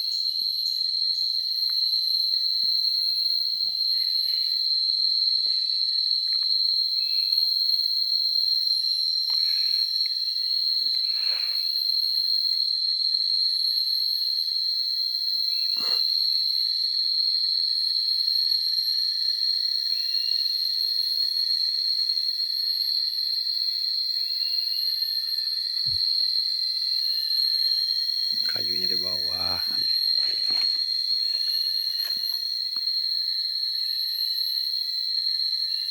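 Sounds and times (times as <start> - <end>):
insects buzzing: 23.5 - 35.9.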